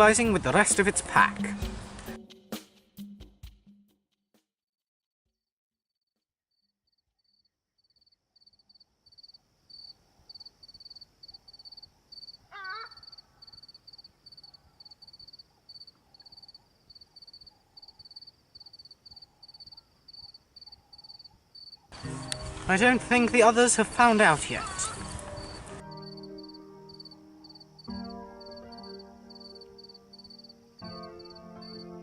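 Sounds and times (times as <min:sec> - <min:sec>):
crickets chirping: 0:07.3 - 0:22.6, 0:24.5 - 0:32.0.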